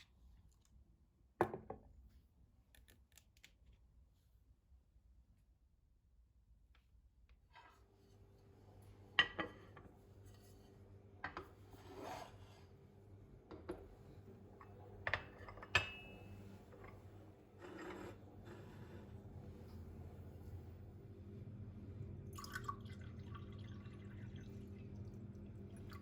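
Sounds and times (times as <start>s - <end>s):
dishes rubbing and sliding: 11.5s - 12.8s, 16.4s - 19.8s
steady low hum: 12.7s - 26.0s
dishes clinking: 14.6s - 17.0s.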